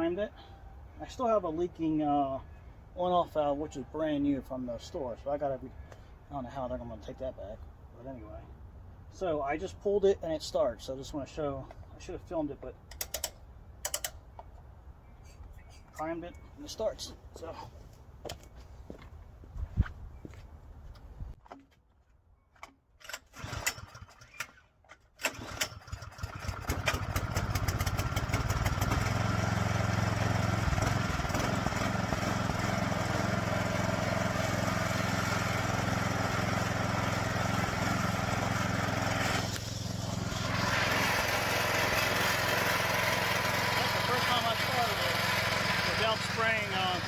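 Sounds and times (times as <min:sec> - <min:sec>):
snowblower engine running: 0:25.3 - 0:47.0.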